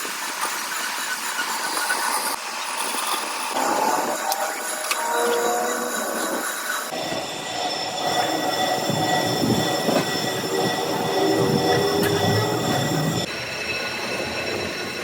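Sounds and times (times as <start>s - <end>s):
cutting tool squealing on metal: 3.6s - 15.0s.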